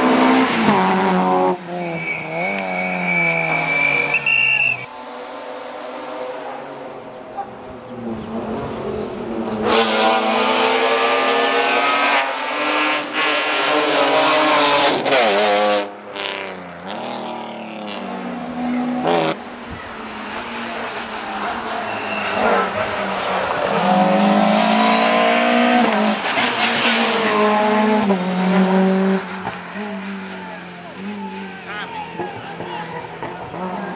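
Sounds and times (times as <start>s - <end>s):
rally car engine revving: 0.0s - 33.9s.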